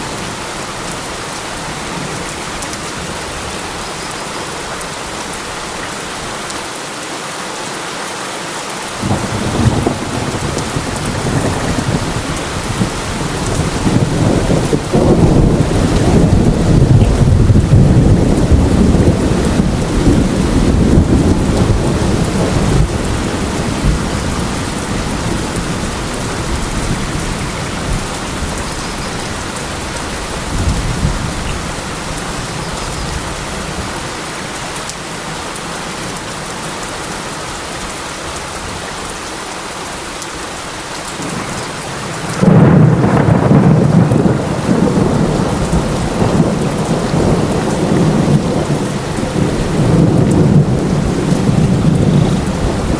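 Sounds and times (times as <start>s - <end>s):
steady rain: 0.0s - 52.9s
loud thunder clap: 9.0s - 25.6s, 42.0s - 52.9s
thunder rumbling: 9.0s - 34.0s, 41.2s - 52.9s.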